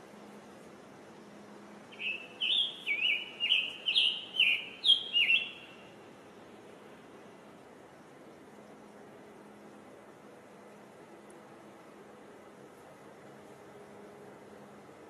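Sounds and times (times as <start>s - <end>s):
bird singing slurred phrases: 2.0s - 5.7s.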